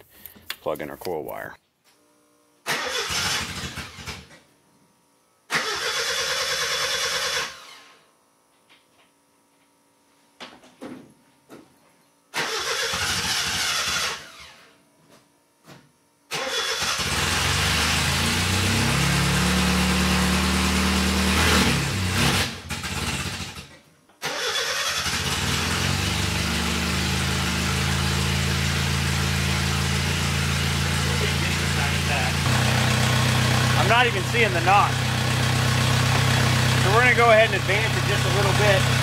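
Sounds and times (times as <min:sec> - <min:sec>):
car engine starting and idling: 0:02.7 - 0:04.4, 0:05.5 - 0:07.8, 0:12.4 - 0:14.6, 0:16.3 - 0:39.0.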